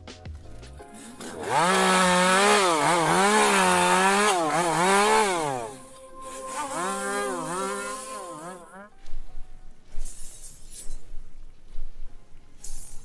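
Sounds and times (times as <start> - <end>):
chainsaw revving: 0.9 - 8.9.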